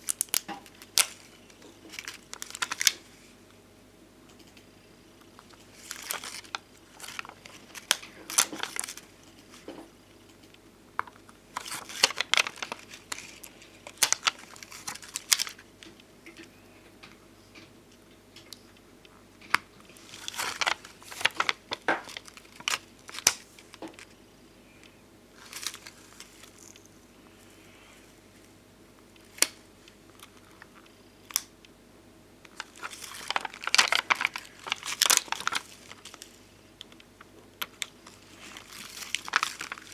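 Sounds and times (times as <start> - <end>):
plastic sticker sheets crinkling: 0.0 - 3.3, 5.2 - 16.4, 19.4 - 31.5, 32.5 - 39.9.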